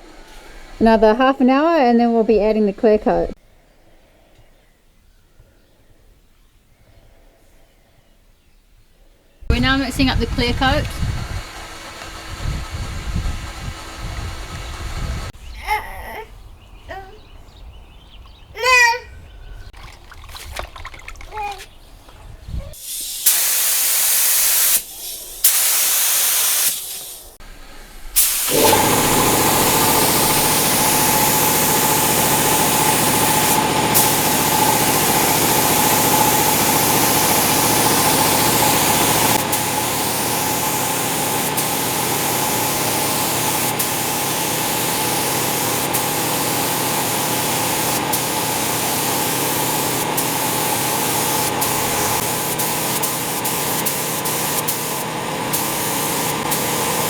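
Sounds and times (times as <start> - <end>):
mechanical hum: 9.4 - 15.4, 27.2 - 57.0
paint spray gun hissing: 9.5 - 15.3, 22.7 - 27.4, 28.2 - 57.0.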